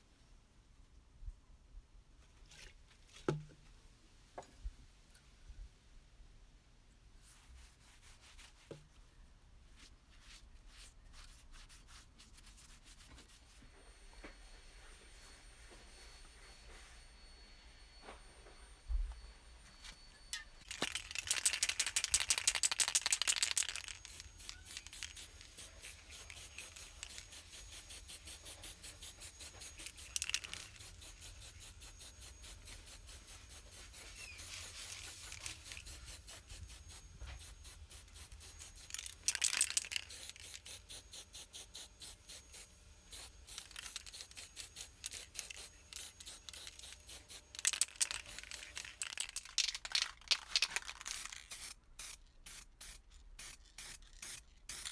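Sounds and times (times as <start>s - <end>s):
hand rubbing strokes on metal part: 20.6s - 49.7s.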